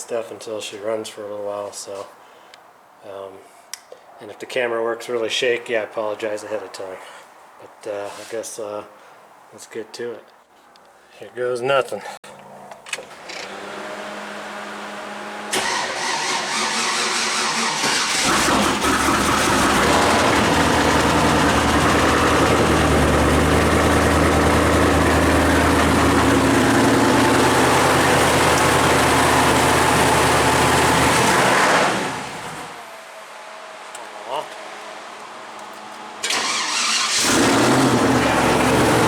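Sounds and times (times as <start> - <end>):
starter motor cranking: 15.5 - 31.3, 36.2 - 39.0
engine running loudly: 18.1 - 32.3, 37.1 - 39.0.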